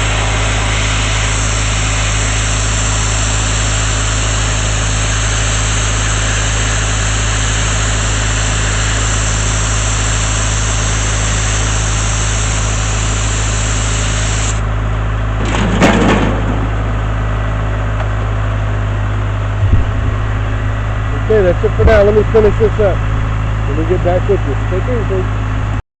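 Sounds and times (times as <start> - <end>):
sandblasting nozzle hissing: 0.0 - 14.7
air compressor engine drone: 0.0 - 25.8.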